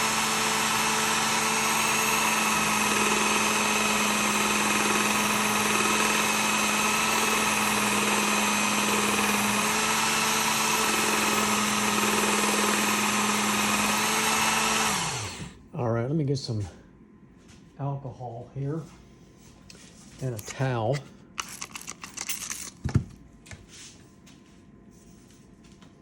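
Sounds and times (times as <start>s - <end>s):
belt sharpener motor hum: 0.0s - 15.6s, 21.4s - 22.9s.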